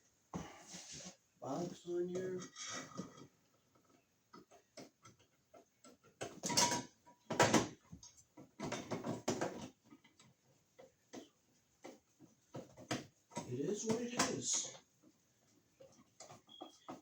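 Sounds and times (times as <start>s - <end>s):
small clicks and taps: 3.5s - 17.0s.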